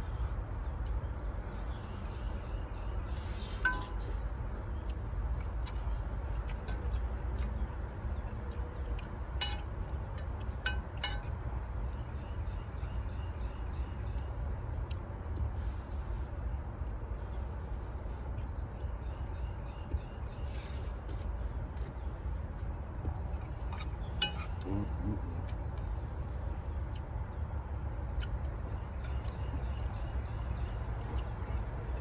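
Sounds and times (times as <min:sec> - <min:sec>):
utensil clinking against dish: 0:03.6 - 0:04.2, 0:09.4 - 0:09.7, 0:23.8 - 0:24.6.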